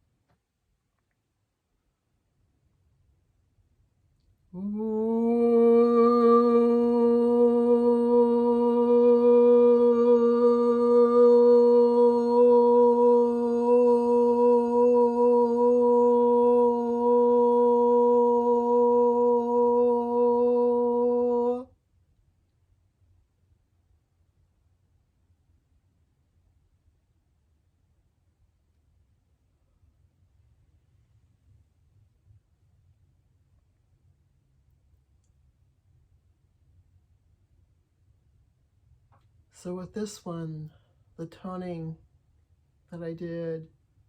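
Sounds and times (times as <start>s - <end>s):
person holding vocal tone: 4.6s - 21.7s.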